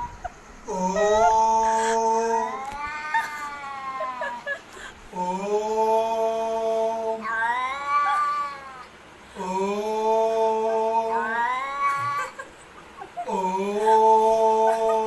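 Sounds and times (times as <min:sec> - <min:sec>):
man mimicking cat yowls: 0:00.7 - 0:04.5, 0:07.1 - 0:08.9, 0:10.2 - 0:12.4
cat yowling: 0:00.8 - 0:04.6, 0:07.2 - 0:08.9, 0:11.1 - 0:12.4.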